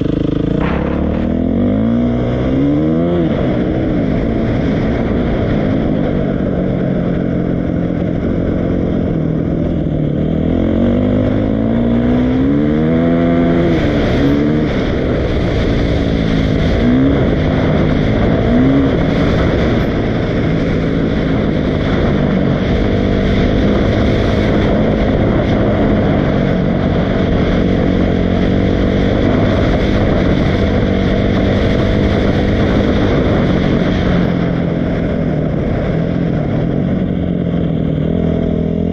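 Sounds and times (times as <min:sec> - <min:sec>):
dirt bike engine revving: 0:00.0 - 0:05.4, 0:10.1 - 0:35.1.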